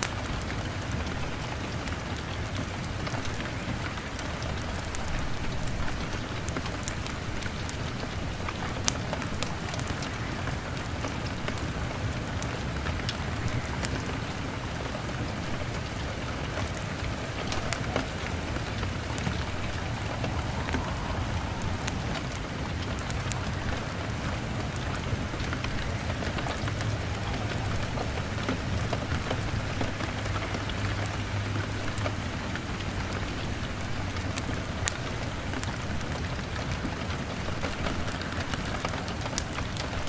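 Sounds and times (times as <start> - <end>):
heavy rain on window: 0.0 - 40.0
log fire crackling: 0.0 - 40.0
low rumble: 17.0 - 27.2.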